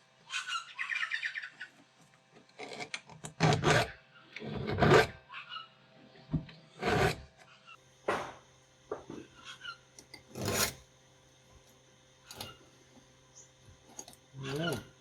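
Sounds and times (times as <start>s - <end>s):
hand file scraping chain: 2.6s - 5.2s, 6.8s - 7.2s, 10.0s - 10.8s, 13.8s - 15.0s.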